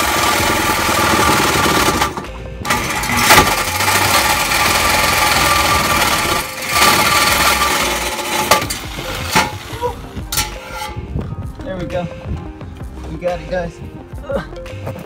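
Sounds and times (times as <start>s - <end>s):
power tool cutting pipe: 0.0s - 9.8s.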